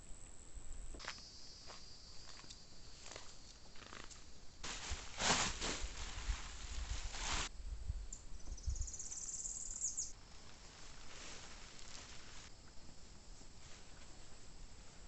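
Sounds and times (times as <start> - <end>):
rustling: 3.0 - 7.5, 10.2 - 15.0.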